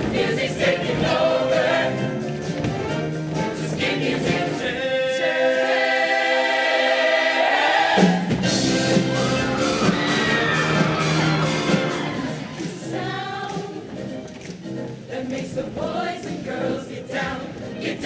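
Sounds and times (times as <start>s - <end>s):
band accompaniment: 0.0s - 5.1s, 7.8s - 15.2s
choir singing: 0.0s - 14.2s, 14.8s - 18.0s.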